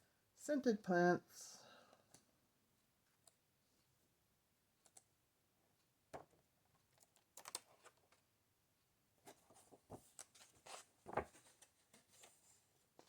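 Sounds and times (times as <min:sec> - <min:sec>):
book pages turning: 0:09.2 - 0:12.4.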